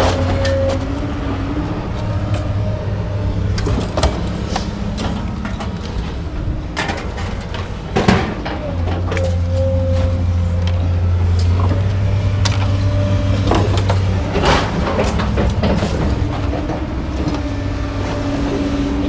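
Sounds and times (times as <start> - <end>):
truck engine and road hum: 0.0 - 19.0
knocks and rattles: 3.5 - 9.5, 13.4 - 17.6.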